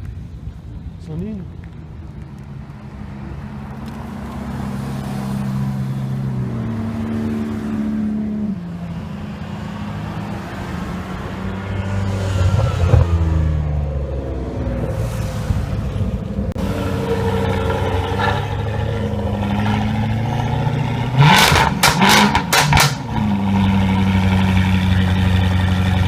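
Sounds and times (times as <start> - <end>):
supercar engine accelerating: 15.8 - 26.0.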